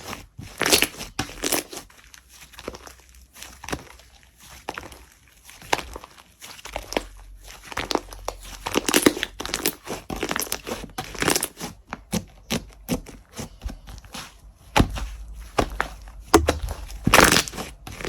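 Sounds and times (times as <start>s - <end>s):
slime squished by hand: 0.5s - 18.0s.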